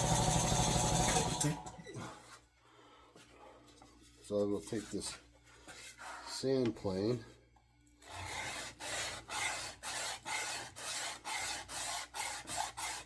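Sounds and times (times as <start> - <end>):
sanding plane rasping on wood: 8.0 - 13.0.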